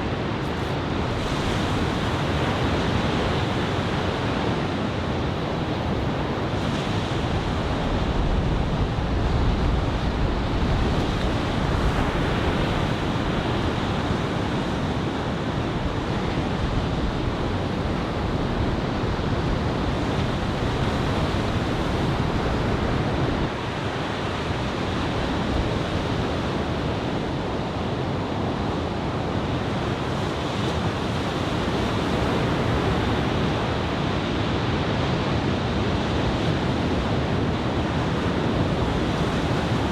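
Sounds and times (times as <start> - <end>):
ocean surf breaking on beach: 0.0 - 39.9
wind buffeting microphone: 0.1 - 23.8.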